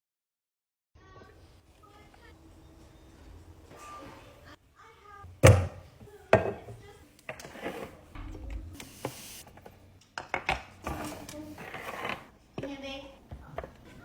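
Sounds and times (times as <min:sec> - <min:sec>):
hard objects knocking: 0:05.4 - 0:06.8.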